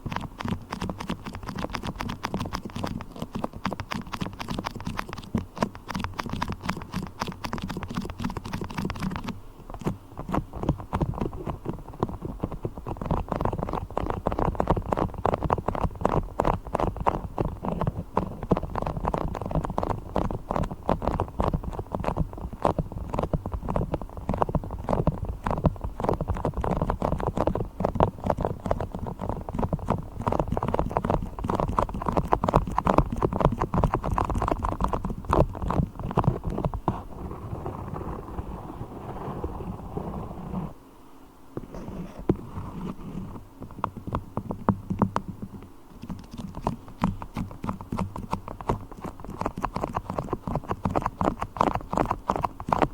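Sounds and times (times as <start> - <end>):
sticky tapping and crackling: 0.0 - 38.8, 41.6 - 52.9.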